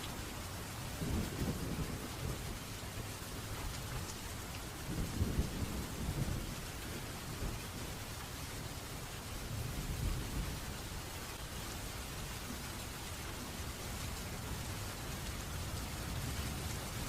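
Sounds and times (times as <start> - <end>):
steady rain falling: 0.0 - 17.0
thunder rumbling: 0.8 - 2.7, 3.4 - 8.0.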